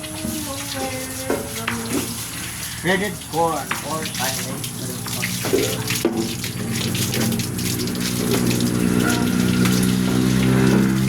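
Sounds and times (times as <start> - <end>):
machine motor humming: 4.1 - 11.0.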